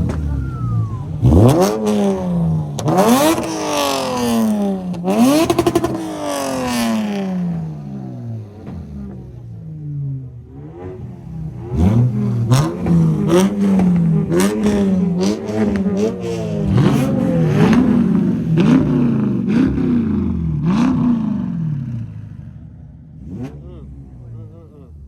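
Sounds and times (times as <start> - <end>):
exhaust pops: 0.0 - 9.7, 11.1 - 19.8
car engine revving: 0.0 - 25.0.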